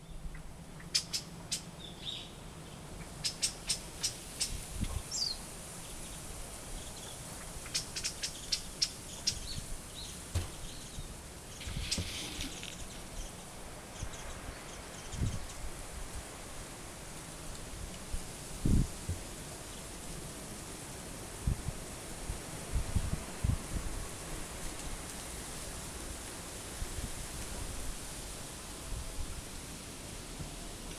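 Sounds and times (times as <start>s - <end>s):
birds chipping: 0.3s - 15.6s.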